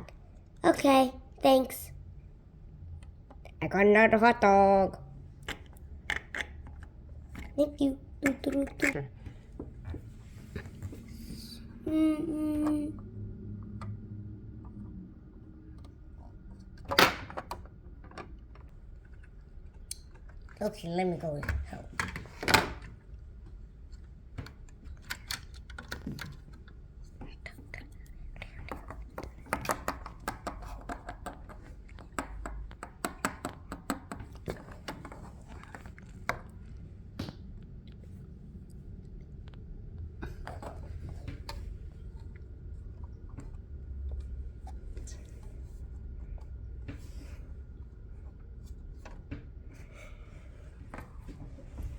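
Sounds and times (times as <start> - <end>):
person humming: 11.5 - 13.0.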